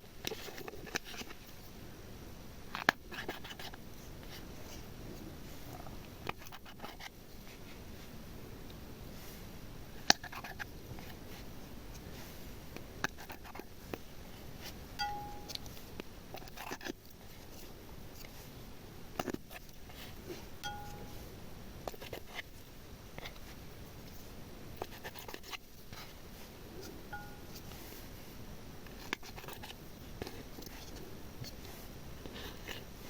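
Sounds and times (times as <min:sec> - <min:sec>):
short ringing clinks: 0:15.0 - 0:15.8, 0:20.6 - 0:21.2.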